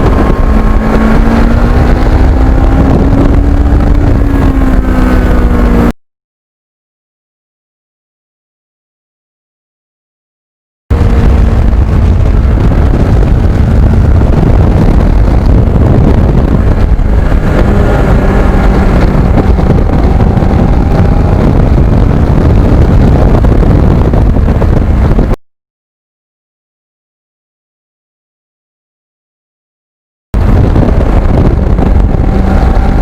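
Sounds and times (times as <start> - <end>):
motorcycle engine drone: 0.0 - 6.0, 10.9 - 25.4, 30.4 - 33.0
wind rush on microphone: 0.0 - 6.0, 10.9 - 25.4, 30.4 - 33.0.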